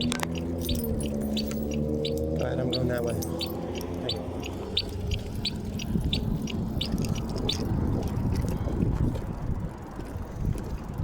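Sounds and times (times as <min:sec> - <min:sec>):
bike riding rumble: 0:00.0 - 0:11.0
wind on microphone: 0:00.0 - 0:11.0.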